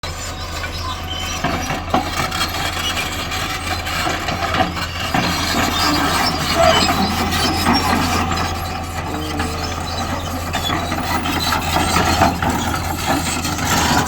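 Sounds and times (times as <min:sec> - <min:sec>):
heavy diesel engine humming: 0:00.0 - 0:14.0
knocks and scraping: 0:00.7 - 0:14.0.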